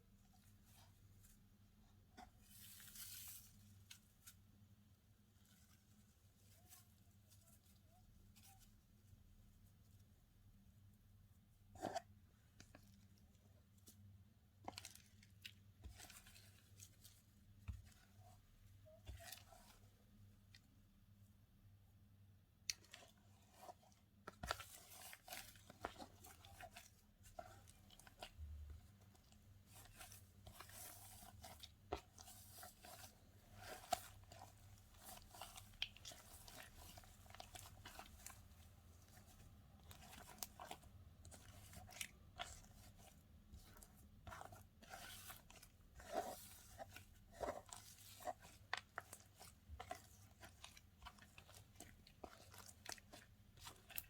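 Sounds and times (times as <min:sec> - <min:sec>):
slime crackling while kneaded: 0:22.7 - 0:54.0.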